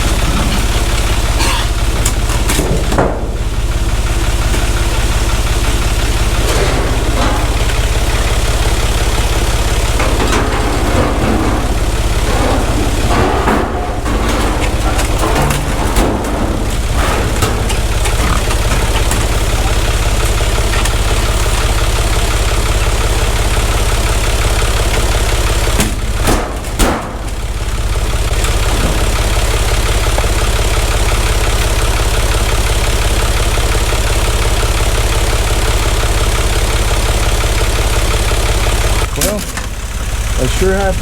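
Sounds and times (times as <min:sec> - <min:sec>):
tractor engine idling: 0:00.0 - 0:41.0.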